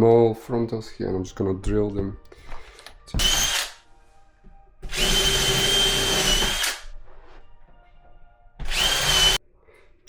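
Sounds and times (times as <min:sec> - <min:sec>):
power drill whining: 0:02.7 - 0:03.8, 0:04.8 - 0:06.9, 0:08.6 - 0:09.4.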